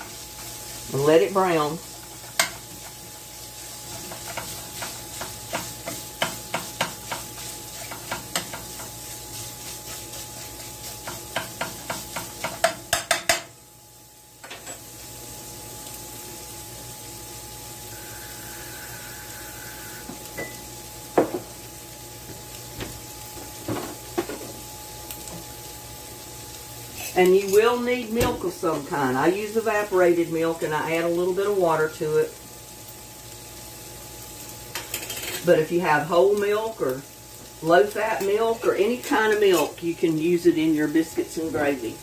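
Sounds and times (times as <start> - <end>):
utensil scraping a pan: 0.0 - 13.2, 26.9 - 27.6, 38.2 - 39.8
sausage sizzling in a skillet: 0.0 - 42.0.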